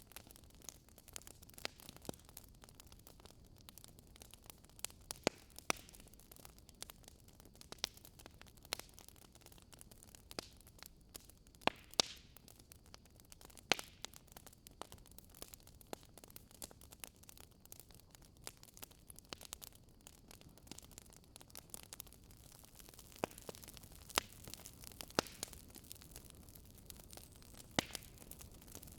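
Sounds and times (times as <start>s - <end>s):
campfire crackling and popping: 0.0s - 28.9s.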